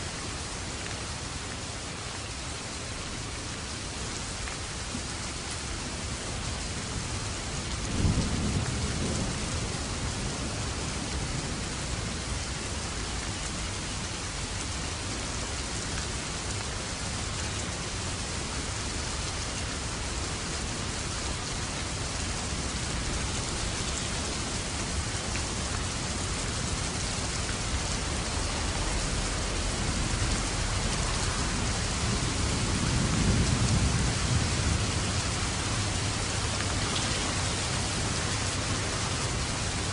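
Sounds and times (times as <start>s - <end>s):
heavy rain: 0.0s - 39.9s
thunder crack and rumble: 7.8s - 12.2s, 27.6s - 39.9s.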